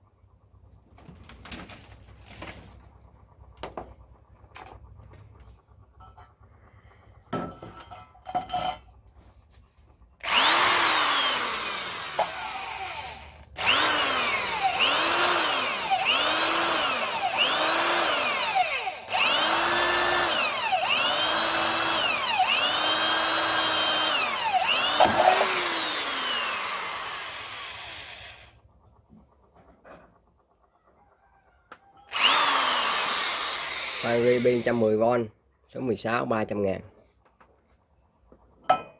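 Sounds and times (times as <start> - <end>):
electric drill drilling steel: 10.2 - 28.6, 32.1 - 35.0.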